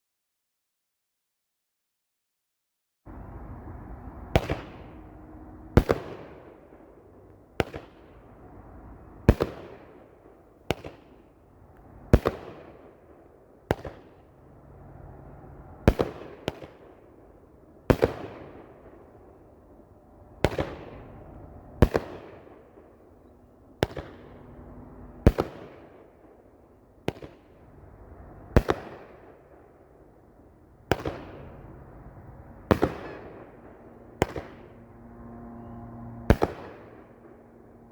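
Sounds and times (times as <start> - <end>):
firework bangs with hiss: 4.3 - 5.1, 5.8 - 6.5, 7.6 - 8.1, 9.2 - 11.2, 12.1 - 13.0, 13.7 - 14.2, 15.8 - 16.9, 17.9 - 19.0, 20.4 - 21.2, 21.8 - 22.9, 23.8 - 24.3, 25.2 - 26.0, 27.0 - 27.6, 28.5 - 29.4, 30.9 - 31.7.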